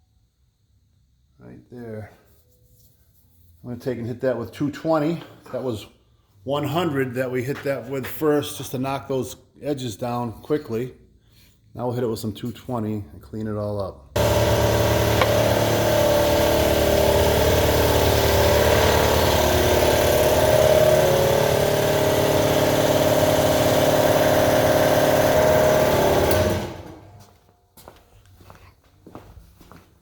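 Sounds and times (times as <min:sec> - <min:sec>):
electric sander sanding wood: 0:14.2 - 0:27.0.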